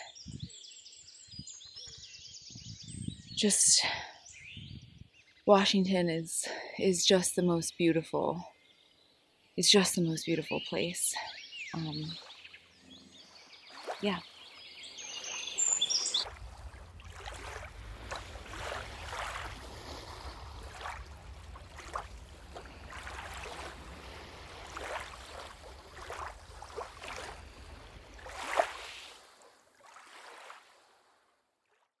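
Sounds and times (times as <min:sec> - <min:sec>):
wind rumble on microphone: 0:00.0 - 0:05.2, 0:16.1 - 0:28.3.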